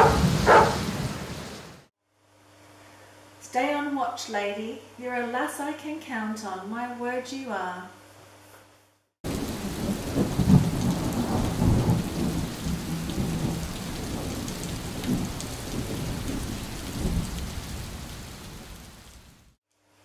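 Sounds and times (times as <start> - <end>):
rolling thunder: 0.0 - 1.6, 9.3 - 18.9
heavy rain: 0.0 - 1.9, 9.2 - 19.6.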